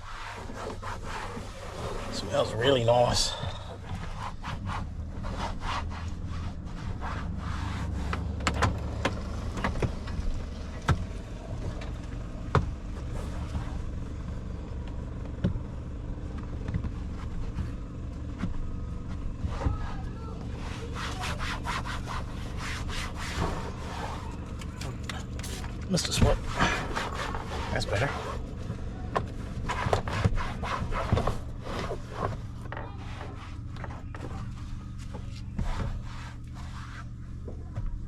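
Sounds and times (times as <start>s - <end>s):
rubbing and scraping trim: 0.0s - 10.4s, 18.3s - 37.4s
steady low hum: 0.0s - 38.0s.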